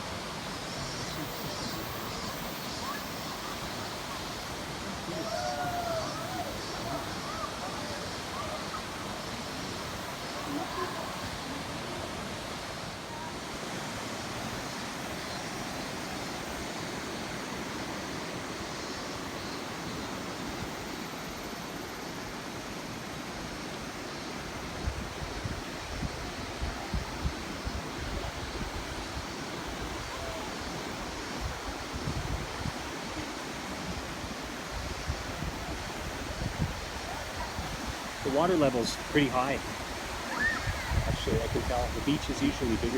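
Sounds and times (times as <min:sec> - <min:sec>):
river rushing: 0:00.0 - 0:42.9
wind buffeting microphone: 0:24.8 - 0:38.3, 0:39.6 - 0:42.9.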